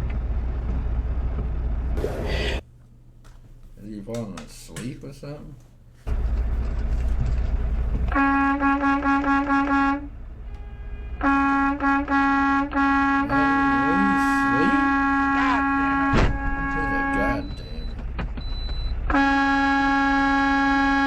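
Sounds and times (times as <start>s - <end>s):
truck horn honking: 7.7s - 18.0s, 18.9s - 21.0s.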